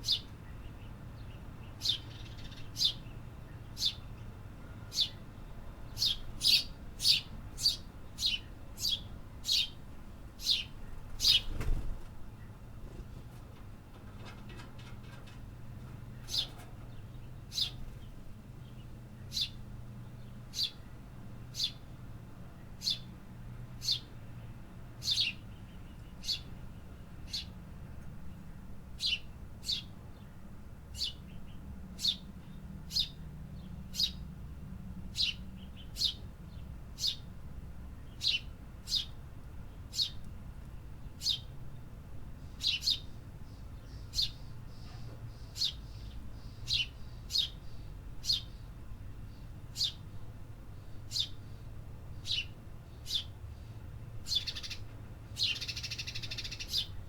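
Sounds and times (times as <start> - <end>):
bird chirping: 0.0 - 5.2, 5.9 - 9.8, 10.4 - 11.6, 16.3 - 20.9, 21.5 - 21.8, 22.8 - 23.1, 23.8 - 24.1, 25.0 - 26.6, 29.0 - 30.3, 30.9 - 34.2, 35.2 - 37.2, 38.0 - 40.3, 41.1 - 41.5, 42.6 - 57.0.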